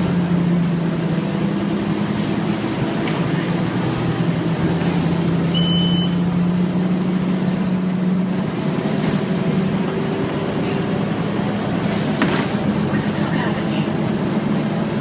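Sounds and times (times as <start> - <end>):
bus diesel engine droning: 0.0 - 15.0
short high beep: 5.5 - 6.2.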